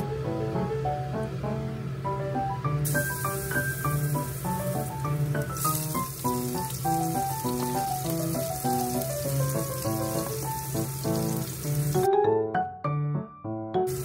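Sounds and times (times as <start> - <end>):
background music: 0.0 - 14.0
food sizzling in a pan: 2.8 - 12.1.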